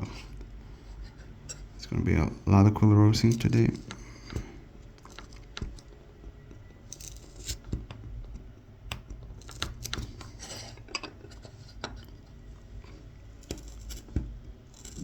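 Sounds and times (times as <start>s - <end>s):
knife scraping wood: 6.9s - 7.7s, 9.4s - 12.0s, 13.4s - 15.0s
knife scratching wood: 6.9s - 7.8s, 9.3s - 11.9s, 13.4s - 15.0s.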